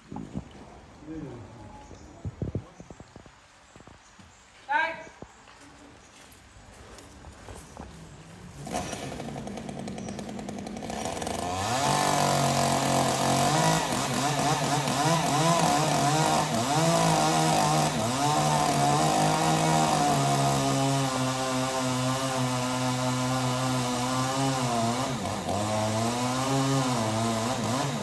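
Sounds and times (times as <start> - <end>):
chainsaw cutting wood: 8.5 - 28.0.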